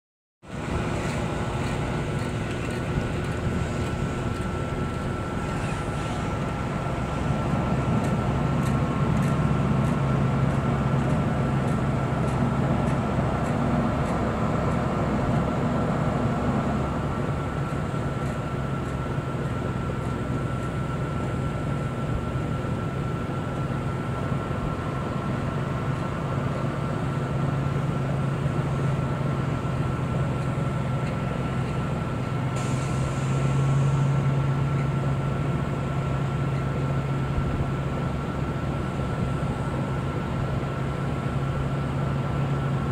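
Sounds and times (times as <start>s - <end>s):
thin steady whine: 0.5s - 42.9s
truck engine reversing: 0.5s - 42.9s.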